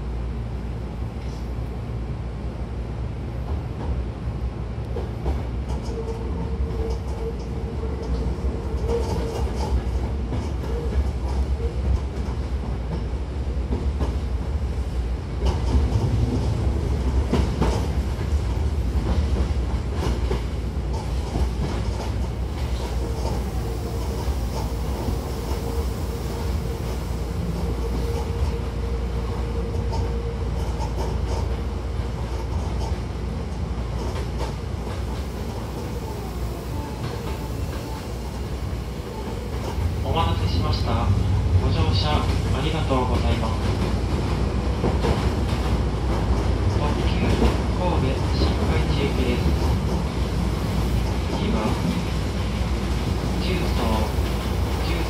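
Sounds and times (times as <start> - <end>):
train wheels rumbling on rail: 0.0 - 55.0
clacks over rail joints: 17.2 - 23.4, 29.8 - 35.3.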